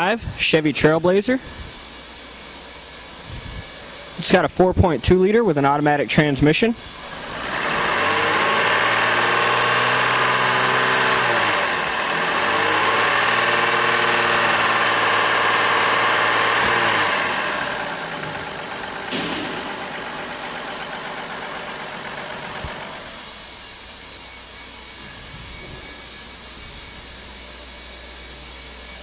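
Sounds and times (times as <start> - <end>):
car engine revving and idling: 6.9 - 23.3.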